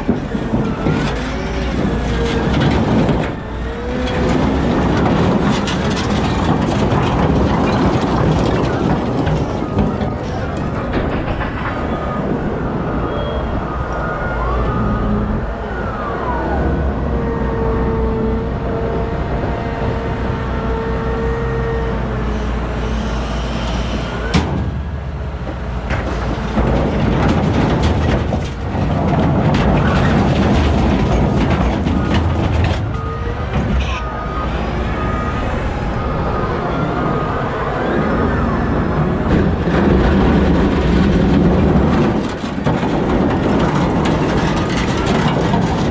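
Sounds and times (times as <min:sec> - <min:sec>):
wheel loader engine under load: 0:00.0 - 0:45.9.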